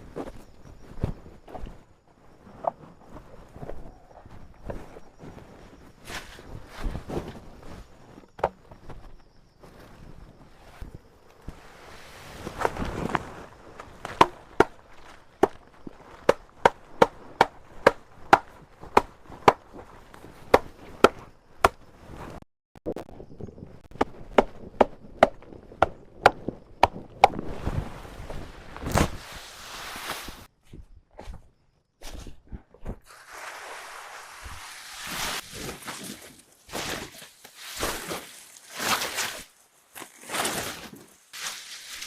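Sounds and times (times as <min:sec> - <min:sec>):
rustling: 0:33.2 - 0:42.0.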